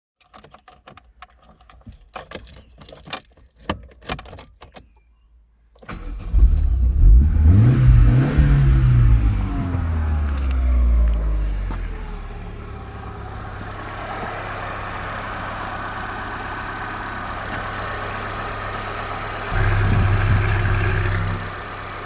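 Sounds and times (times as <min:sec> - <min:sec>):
light clicks and rattles: 0:00.2 - 0:05.1
car engine starting and revving: 0:05.9 - 0:22.0.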